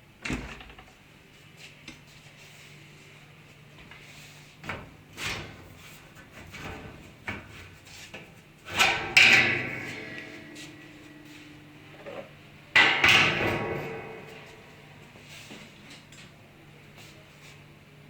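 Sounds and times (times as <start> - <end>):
dishwasher racks knocking and rattling: 8.7 - 11.4, 12.2 - 14.9
loud ringing clank: 8.8 - 15.0.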